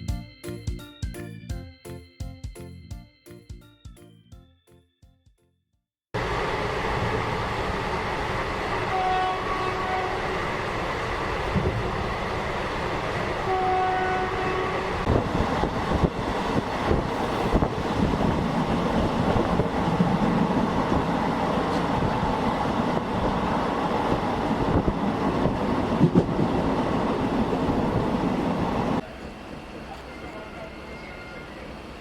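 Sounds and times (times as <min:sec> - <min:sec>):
train rumbling on rails: 0:06.2 - 0:32.0
train horn: 0:08.9 - 0:10.4, 0:13.4 - 0:15.1, 0:30.1 - 0:31.7.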